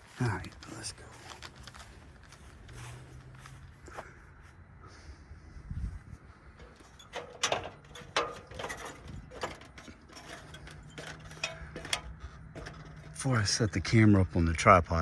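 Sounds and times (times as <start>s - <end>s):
equipment clicking and knocking: 6.6s - 13.3s.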